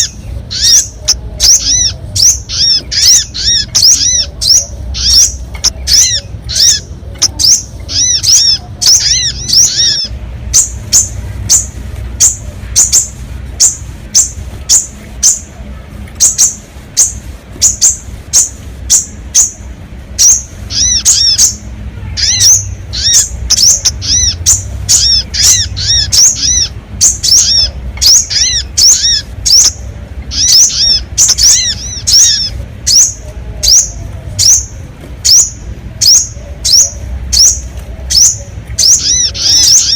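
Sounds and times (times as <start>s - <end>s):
bird high chirps: 0.0s - 15.6s, 16.2s - 19.6s, 20.2s - 39.9s
low hum: 0.0s - 39.9s.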